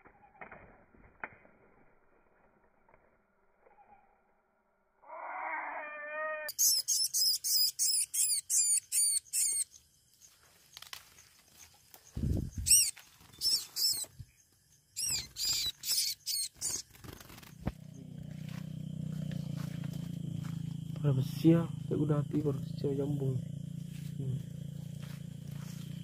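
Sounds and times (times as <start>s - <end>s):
high-pitched bird chirps: 5.4s - 9.8s, 12.1s - 14.3s, 15.0s - 18.1s.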